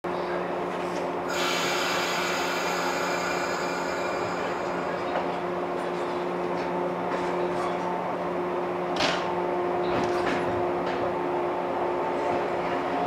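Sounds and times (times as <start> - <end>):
train equipment humming: 0.2 - 9.0
hissing whining machinery: 1.3 - 6.6.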